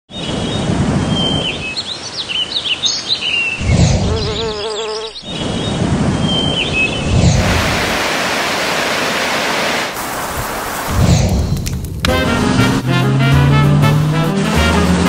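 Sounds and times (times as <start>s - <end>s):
birds chirping: 0.1s - 7.6s
steady hiss: 7.4s - 11.4s.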